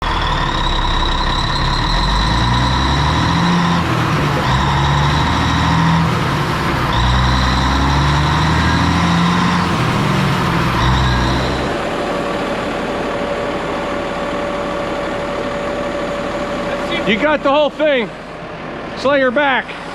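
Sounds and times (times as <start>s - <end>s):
crane diesel engine revving: 0.0s - 19.0s
high hydraulic whine: 0.0s - 19.0s.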